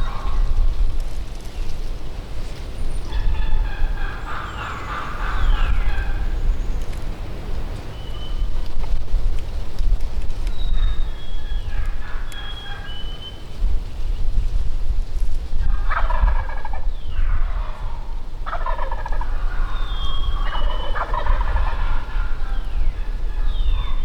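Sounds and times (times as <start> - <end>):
wild turkeys gobbling: 0.0 - 0.8, 3.1 - 6.4, 10.9 - 13.4, 15.6 - 24.0.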